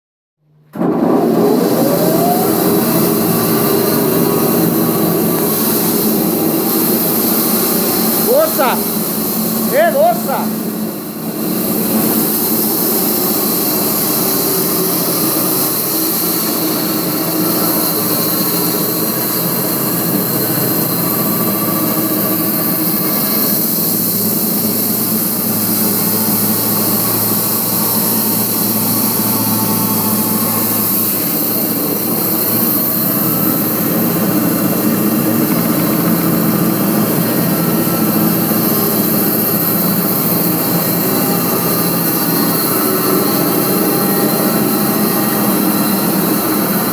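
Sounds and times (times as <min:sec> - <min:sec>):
sawmill machine drone: 0:00.7 - 0:46.9.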